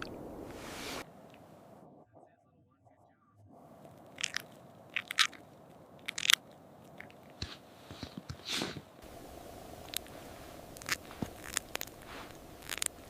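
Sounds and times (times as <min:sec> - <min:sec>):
steady low hiss: 0:00.0 - 0:13.0
crisp crunches: 0:04.1 - 0:08.8, 0:09.8 - 0:13.0.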